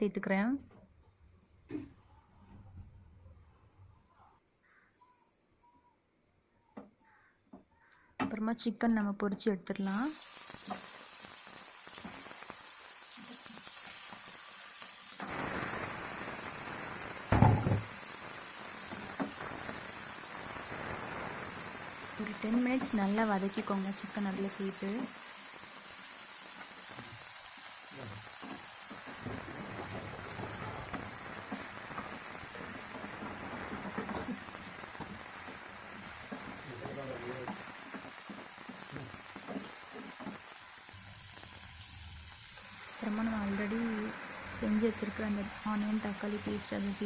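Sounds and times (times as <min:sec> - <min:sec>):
chicken sizzling in hot oil: 0:09.8 - 0:47.0
short loud knock: 0:17.3 - 0:17.9.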